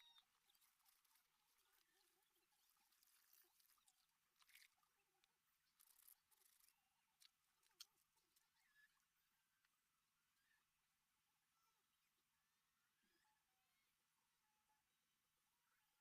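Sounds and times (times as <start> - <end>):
faint clicks and rustles: 0.0 - 8.9.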